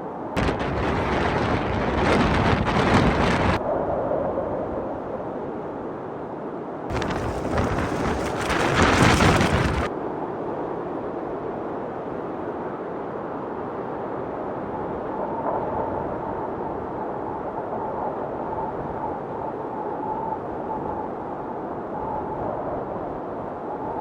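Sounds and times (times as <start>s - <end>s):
rushing wind: 0.0s - 24.0s
wind buffeting microphone: 0.4s - 4.6s, 6.9s - 9.9s.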